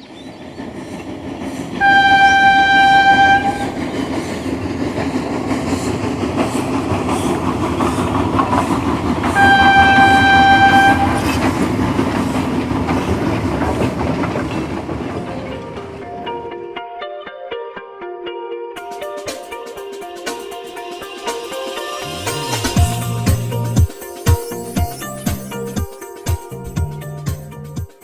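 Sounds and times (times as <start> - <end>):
train rumbling clatter: 0.0 - 16.6, 22.0 - 27.7
train horn blasts: 1.8 - 3.8, 9.2 - 11.6.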